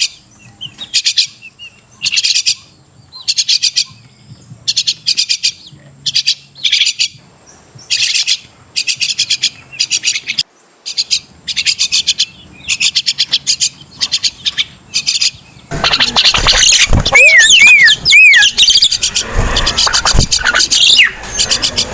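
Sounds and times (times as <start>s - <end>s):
myna chattering calls: 7.9s - 21.9s.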